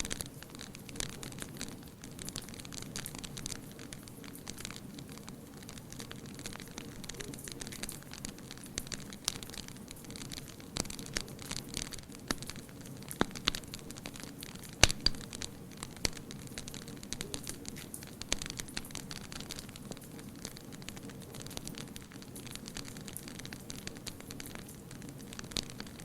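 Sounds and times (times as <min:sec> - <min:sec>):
low hiss: 0:00.0 - 0:26.0
wood fire crackling: 0:00.0 - 0:26.0
sharp pops: 0:14.6 - 0:16.3.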